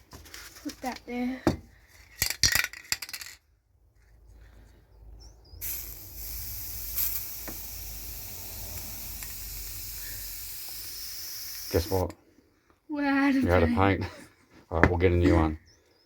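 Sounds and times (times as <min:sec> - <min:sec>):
spray paint can hissing: 0:05.6 - 0:12.2.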